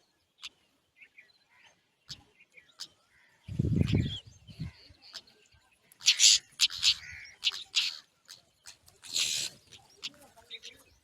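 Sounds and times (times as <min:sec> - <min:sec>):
baby birds hissy calls: 0:06.0 - 0:08.1, 0:08.7 - 0:09.8.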